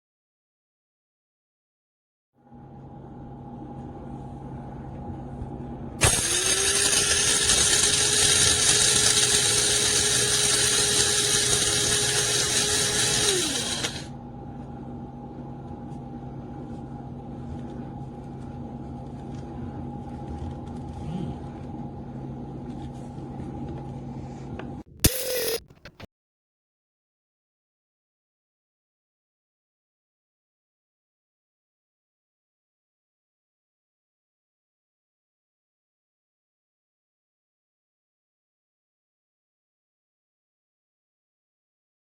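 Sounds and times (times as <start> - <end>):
blade grinder motor grinding: 6.0 - 14.1, 25.1 - 26.0.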